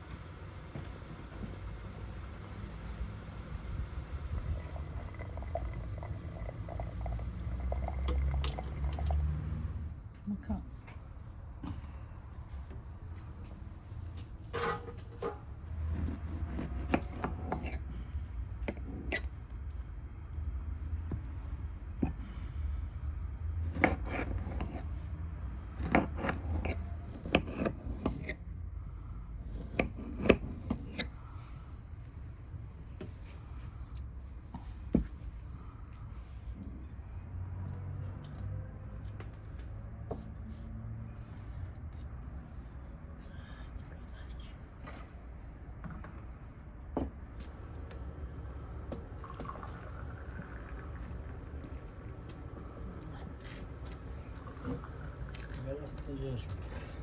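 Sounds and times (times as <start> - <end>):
pot of liquid bubbling: 4.2 - 9.5, 49.1 - 52.6, 53.7 - 55.6
knife cutting food: 16.0 - 17.8, 23.7 - 24.8.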